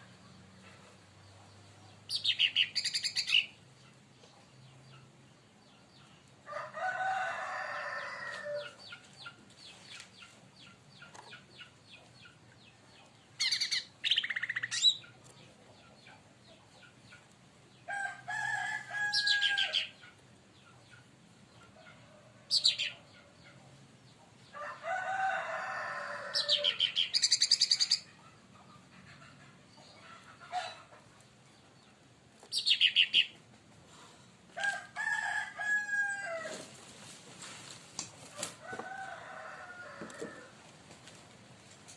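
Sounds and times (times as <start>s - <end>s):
bird chirping and trilling: 2.1s - 3.6s, 13.4s - 15.1s, 26.4s - 28.1s, 32.5s - 33.4s.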